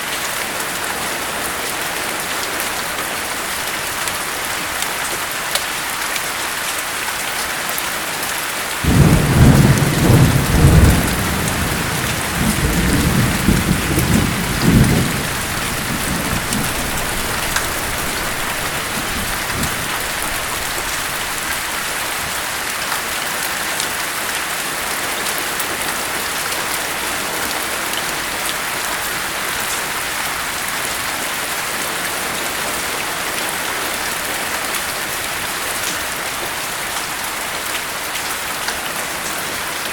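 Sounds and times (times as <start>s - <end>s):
steady rain: 0.0s - 39.9s
thunder rumbling: 8.8s - 22.3s.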